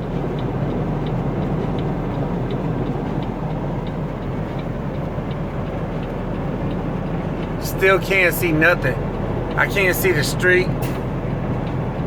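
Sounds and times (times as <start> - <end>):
faint light ticks: 0.0 - 7.6, 10.8 - 12.0
engine and road rumble: 0.0 - 12.0.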